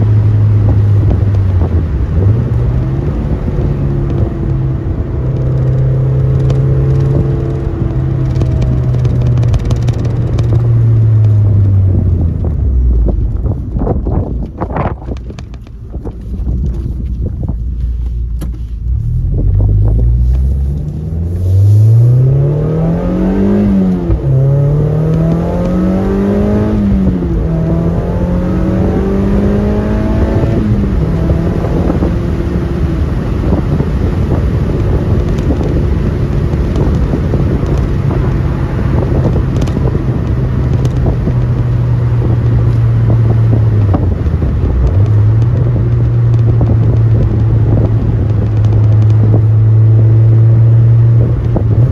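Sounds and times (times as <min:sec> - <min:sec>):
car engine accelerating through gears: 0:00.0 - 0:51.9.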